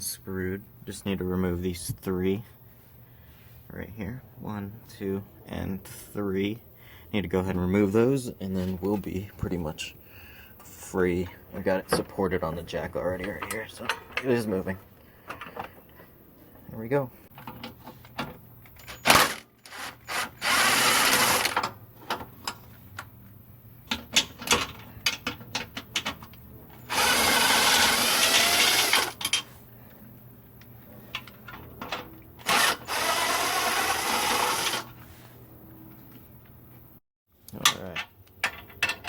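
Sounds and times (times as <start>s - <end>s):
tools clanking on metal: 13.1s - 14.5s
power tool running: 19.1s - 21.6s, 26.9s - 29.2s, 32.4s - 35.0s.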